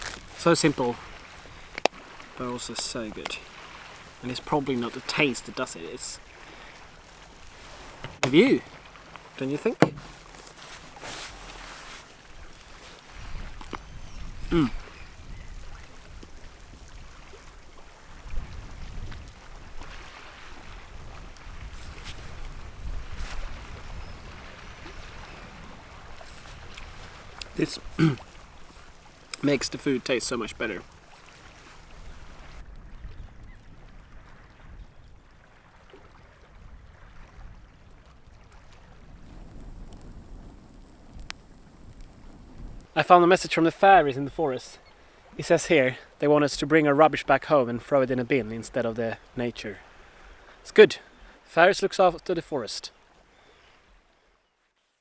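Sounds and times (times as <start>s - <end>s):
wind and water at seashore: 0.0s - 55.0s
wind buffeting microphone: 18.1s - 20.0s, 20.6s - 28.0s, 32.0s - 35.3s, 38.9s - 43.0s.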